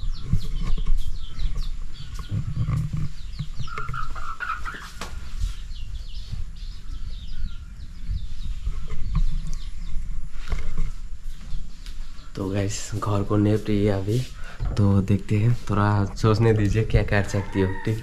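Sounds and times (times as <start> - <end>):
lower bird call: 0.0 - 13.4
small birds chirping: 0.0 - 18.0.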